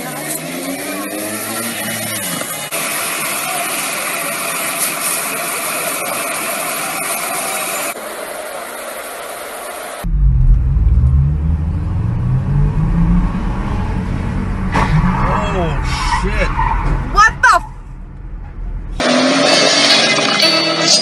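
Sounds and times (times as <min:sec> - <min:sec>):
sports car engines accelerating: 0:00.0 - 0:03.3, 0:10.0 - 0:17.2.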